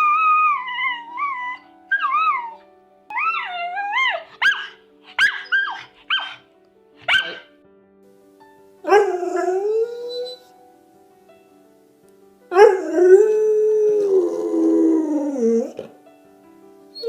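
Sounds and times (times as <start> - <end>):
dog howling: 0.0 - 6.4, 7.1 - 7.4, 8.9 - 10.5, 12.5 - 16.0
faint background music: 0.0 - 17.0
dog yelping barks: 1.9 - 6.4, 7.0 - 7.5.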